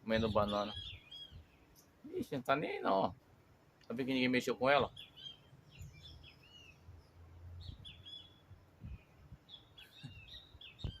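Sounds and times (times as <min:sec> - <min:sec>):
birds chirping: 0:00.0 - 0:11.0
soft low thumps: 0:08.8 - 0:11.0.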